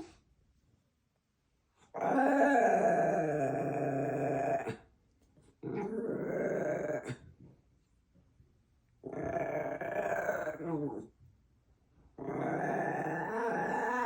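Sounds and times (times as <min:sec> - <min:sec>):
growl-like vocal sounds: 0:02.0 - 0:04.8, 0:05.6 - 0:07.2, 0:09.0 - 0:11.1, 0:12.2 - 0:14.0.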